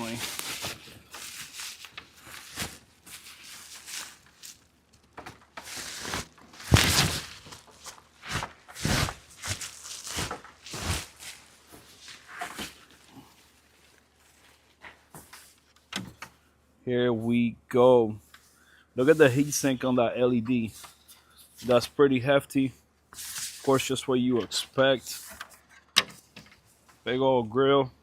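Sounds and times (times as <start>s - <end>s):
packing material rustling: 0.0s - 15.7s.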